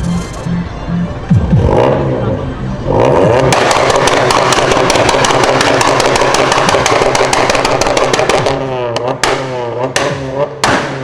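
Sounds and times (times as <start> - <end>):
car engine revving: 0.0 - 11.0
exhaust crackling pops: 3.3 - 11.0.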